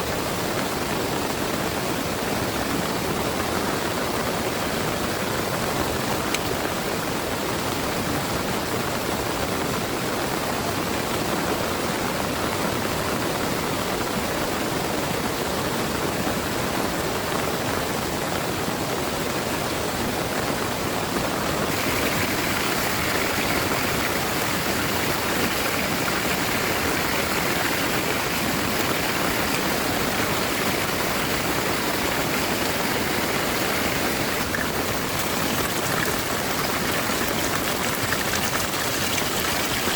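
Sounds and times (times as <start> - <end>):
heavy rain pouring: 21.3 - 39.9.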